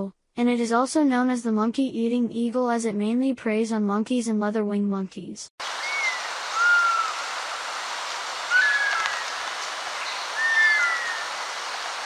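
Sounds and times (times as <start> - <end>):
steady background hiss: 5.6 - 12.0
bird whistled calls: 5.8 - 7.3, 8.4 - 12.0.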